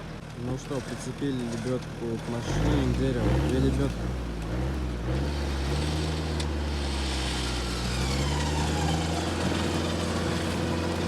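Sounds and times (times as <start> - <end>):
off-road vehicle engine running: 0.0 - 11.0.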